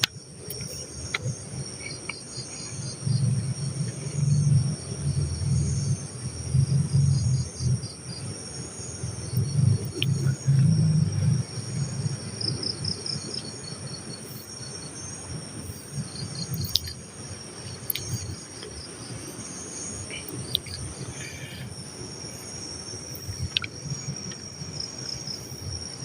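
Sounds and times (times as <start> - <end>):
crickets trilling: 0.0 - 26.0
low rumble: 2.8 - 13.2.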